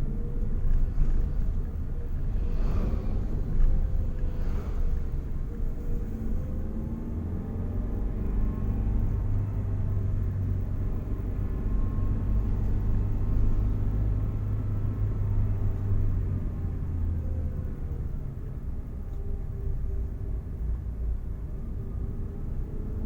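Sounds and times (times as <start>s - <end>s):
vehicle engine and road noise: 0.0s - 23.0s.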